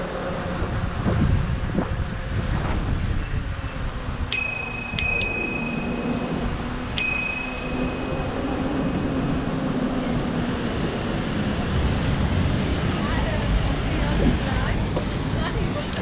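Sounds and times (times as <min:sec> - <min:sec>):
road noise: 0:00.0 - 0:16.0
wind: 0:00.0 - 0:16.0
bicycle bell ringing: 0:04.3 - 0:09.5.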